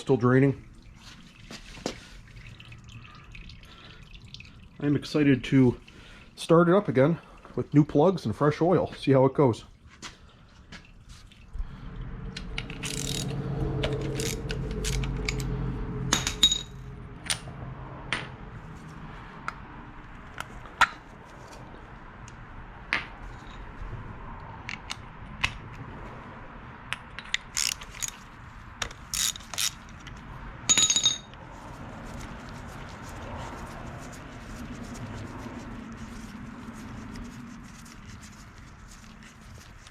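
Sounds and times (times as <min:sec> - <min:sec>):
socket ratchet clicking: 0:12.7 - 0:13.3, 0:14.2 - 0:15.5, 0:27.2 - 0:28.2, 0:28.8 - 0:30.1.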